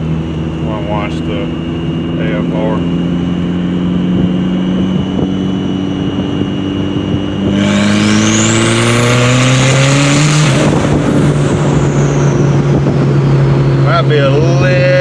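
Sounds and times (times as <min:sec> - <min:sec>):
car engine accelerating hard: 0:00.0 - 0:15.0
turbo whistle: 0:11.4 - 0:13.0.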